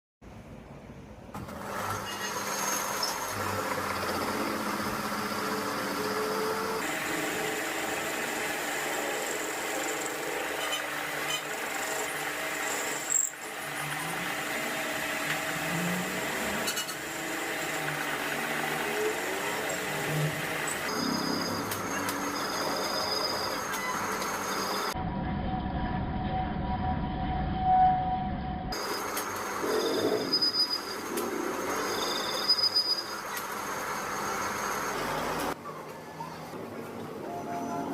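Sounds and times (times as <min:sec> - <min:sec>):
metal lathe cutting metal: 0:01.5 - 0:25.0.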